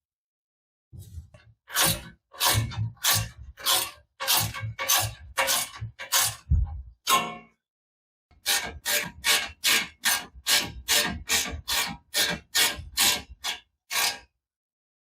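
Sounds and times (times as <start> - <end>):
hand tool rasping on metal: 1.7 - 7.2, 8.4 - 14.3.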